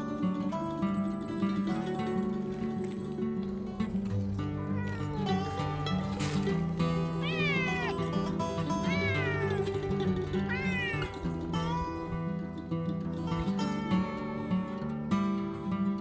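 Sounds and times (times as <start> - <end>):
background music with plucked notes: 0.0 - 16.0
cat meowing: 4.2 - 12.2.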